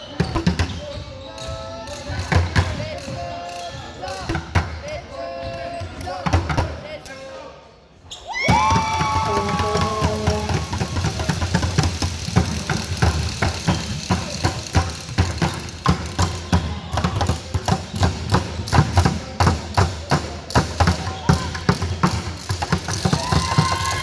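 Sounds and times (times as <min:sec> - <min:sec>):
rapid irregular knocks and clatters: 0:08.5 - 0:18.9, 0:20.1 - 0:24.0.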